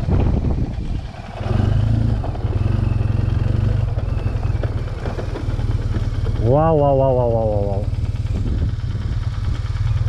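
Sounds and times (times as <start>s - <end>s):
light clattering over rough ground: 0.0s - 9.8s
motorcycle engine at low revs: 0.0s - 10.0s.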